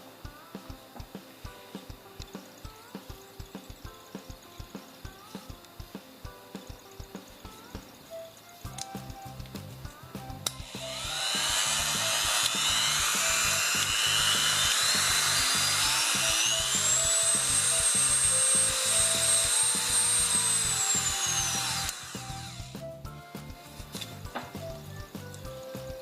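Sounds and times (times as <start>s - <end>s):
background music: 0.0s - 26.0s
rotary tool motor whine: 10.5s - 22.8s.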